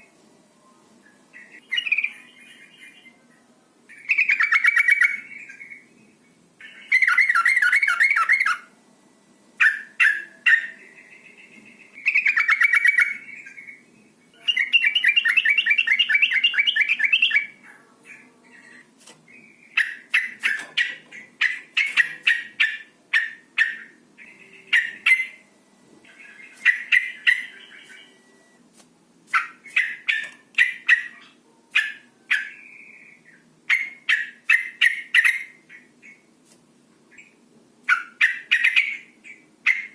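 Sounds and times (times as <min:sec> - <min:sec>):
bird rasping chattering calls: 0:19.7 - 0:24.0, 0:29.4 - 0:32.6.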